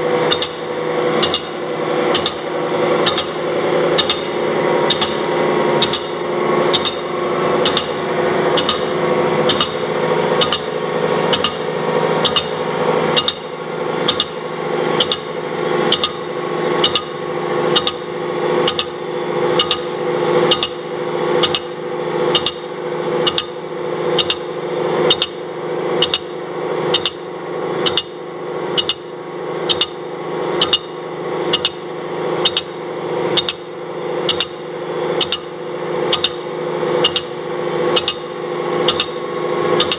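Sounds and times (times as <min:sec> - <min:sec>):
machine spindle drone: 0:00.0 - 0:39.9
cutter knocking on metal: 0:00.3 - 0:12.6, 0:14.1 - 0:14.4, 0:38.0 - 0:38.3, 0:38.9 - 0:39.2.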